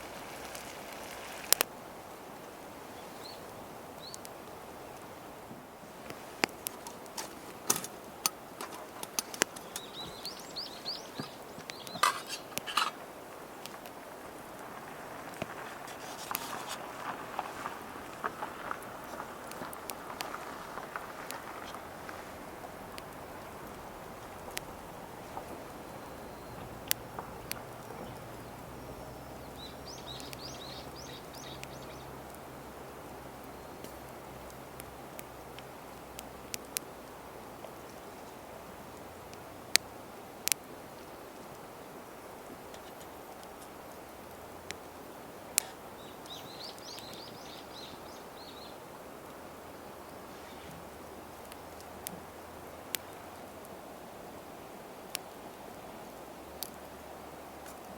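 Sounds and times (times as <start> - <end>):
campfire crackling and popping: 0.0 - 57.9
bird chirping: 8.6 - 13.0, 25.3 - 32.6, 46.0 - 48.8.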